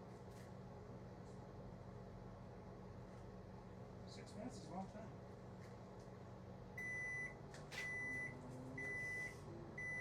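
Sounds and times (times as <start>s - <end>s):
microwave oven humming: 0.0s - 10.0s
high microwave beeps: 6.8s - 10.0s.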